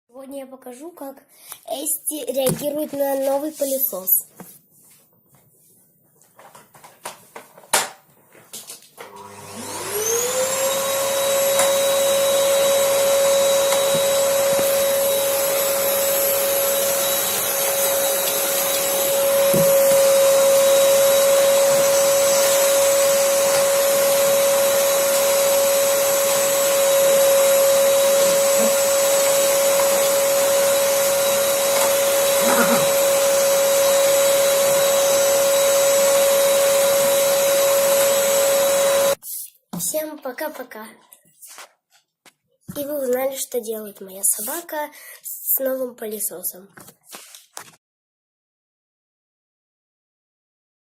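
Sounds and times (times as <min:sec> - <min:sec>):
vacuum cleaner motor whine: 0:09.0 - 0:39.2.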